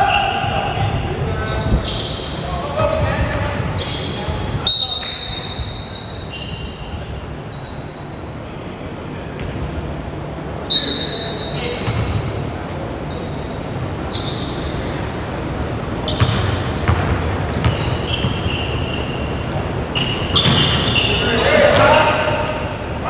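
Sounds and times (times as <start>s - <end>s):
voices: 0.0s - 7.4s, 10.1s - 23.0s
sneakers squeaking on floor: 0.0s - 8.4s, 9.4s - 9.7s, 10.6s - 23.0s
echoing hall ambience: 0.0s - 23.0s
basketball bouncing on court: 0.4s - 4.6s, 9.4s - 9.7s, 11.8s - 23.0s.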